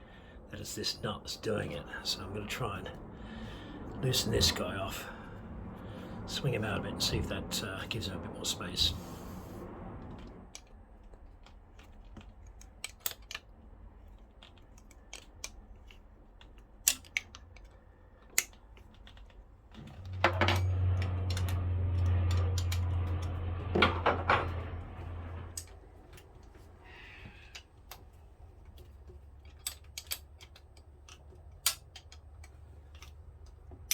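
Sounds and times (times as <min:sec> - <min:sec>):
steady low hum: 0:00.0 - 0:11.2, 0:19.4 - 0:33.9
hand tools clicking: 0:14.3 - 0:19.3, 0:29.4 - 0:33.9.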